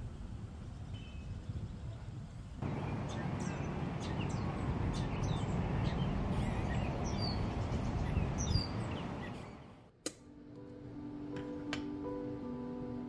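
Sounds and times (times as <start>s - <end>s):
birds chirping: 0.6s - 9.9s.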